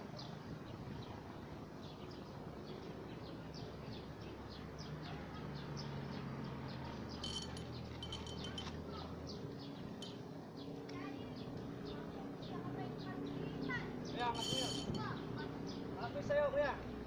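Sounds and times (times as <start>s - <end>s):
light metallic jingling: 7.1s - 9.1s, 10.0s - 10.2s, 14.2s - 15.2s.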